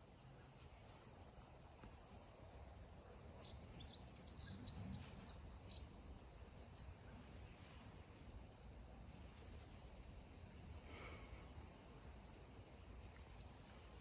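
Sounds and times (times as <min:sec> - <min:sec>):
small bird twittering: 0:02.7 - 0:06.1.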